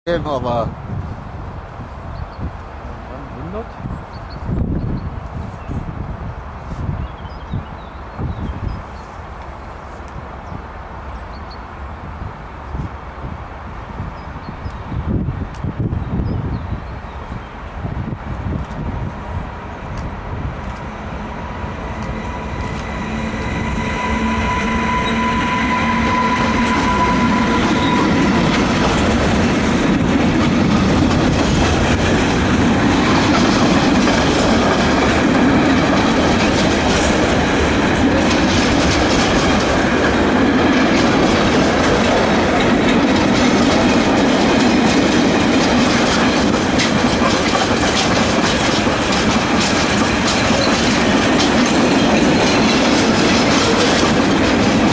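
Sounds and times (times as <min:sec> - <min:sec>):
freight train passing: 0:00.1 - 0:54.9
steady tones: 0:19.2 - 0:35.4
wheels clicking over rail joints: 0:28.3 - 0:54.9.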